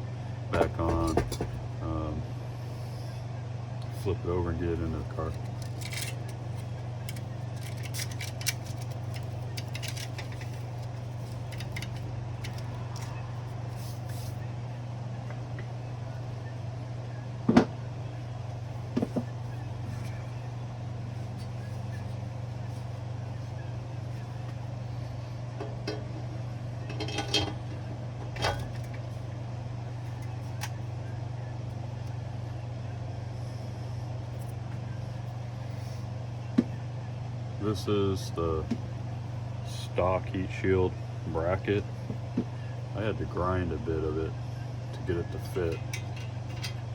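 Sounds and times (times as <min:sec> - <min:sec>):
steady low hum: 0:00.0 - 0:46.9
metal tools clicking and clinking: 0:05.3 - 0:10.7, 0:11.4 - 0:13.1, 0:45.5 - 0:46.8.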